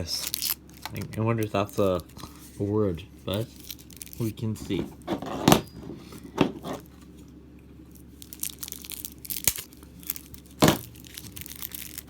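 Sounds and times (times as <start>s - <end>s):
packaging crinkling and tearing: 0.0s - 2.4s, 3.4s - 4.8s, 7.9s - 12.0s.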